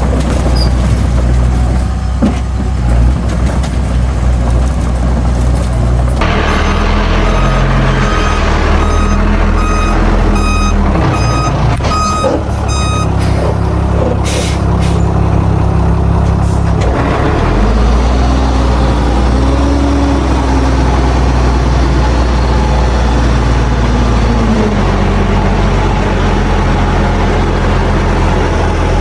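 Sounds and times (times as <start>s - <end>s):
diesel engine running: 0.0s - 29.0s
backup alarm beeping: 6.3s - 13.4s.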